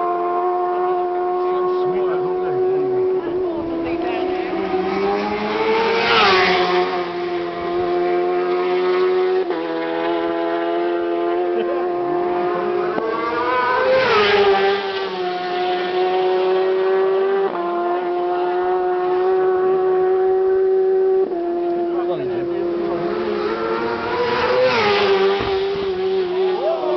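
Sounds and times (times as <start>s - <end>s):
motorcycles racing past: 0.0s - 26.9s.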